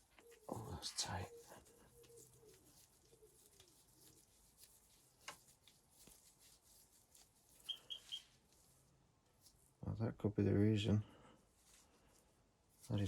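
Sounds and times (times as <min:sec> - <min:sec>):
short high chirps: 0:07.7 - 0:08.2.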